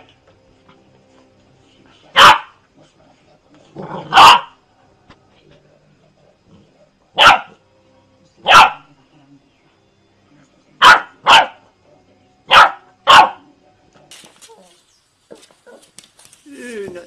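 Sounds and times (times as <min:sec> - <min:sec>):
puppy yapping: 0:04.1 - 0:04.5, 0:07.2 - 0:07.6.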